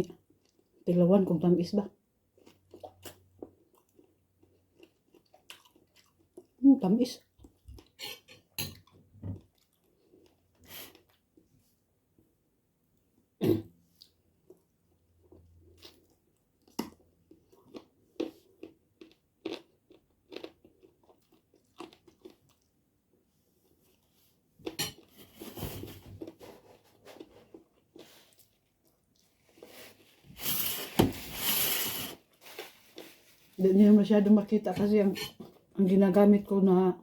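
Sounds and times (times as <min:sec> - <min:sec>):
person chewing and crunching: 0:02.3 - 0:06.6, 0:07.4 - 0:11.4, 0:13.9 - 0:22.8.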